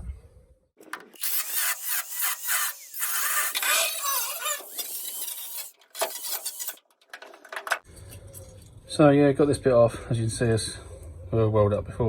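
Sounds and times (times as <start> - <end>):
power tool screeching on metal: 1.2 - 6.8.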